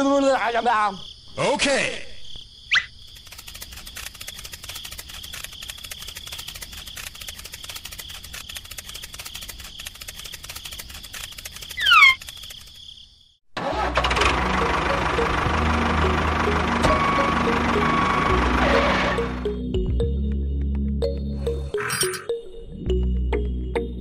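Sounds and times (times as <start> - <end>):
crickets chirping: 0.0 - 13.5
tractor engine running: 3.2 - 12.8, 13.6 - 20.7.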